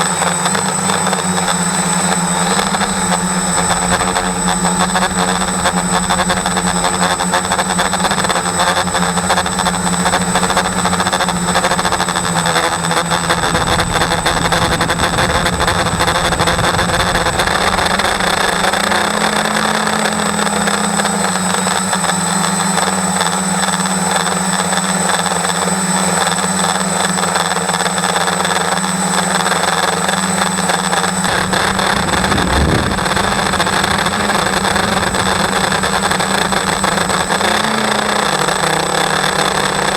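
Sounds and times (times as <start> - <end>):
small motor spinning propeller: 0.0 - 39.9
low rumble: 1.6 - 20.4, 31.1 - 39.9.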